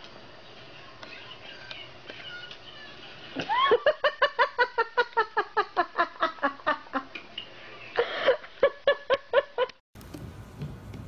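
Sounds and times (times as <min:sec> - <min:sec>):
person laughing in high bursts: 0:03.4 - 0:07.1.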